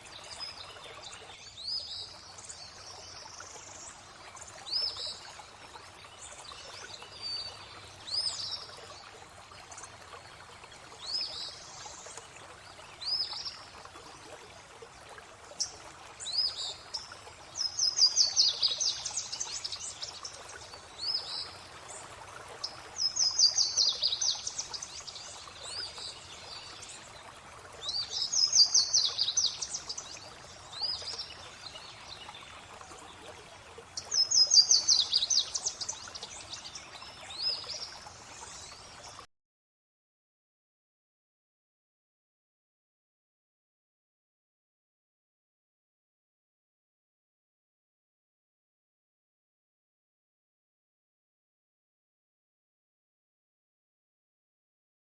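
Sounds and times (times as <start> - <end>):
running water: 0.0 - 39.3
songbirds singing: 15.6 - 39.2.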